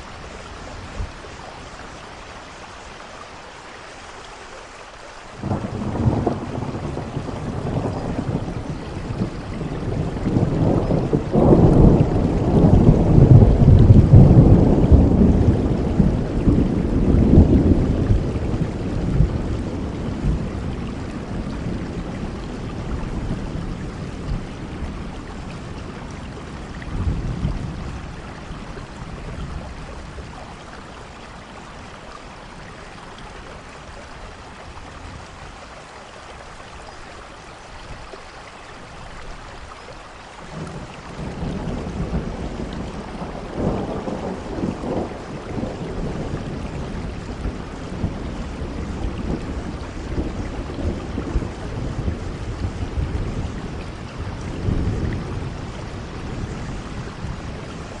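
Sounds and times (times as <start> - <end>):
rain hissing: 0.0 - 58.0
thunder rumbling: 5.4 - 32.7, 40.4 - 58.0.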